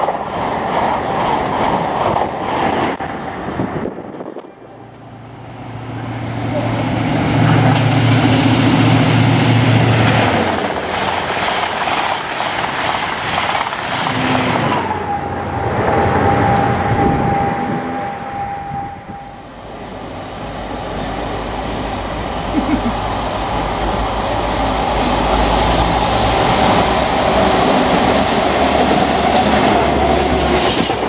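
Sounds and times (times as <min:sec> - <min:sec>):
train wheels clattering on rails: 0:07.4 - 0:15.2, 0:25.0 - 0:31.0.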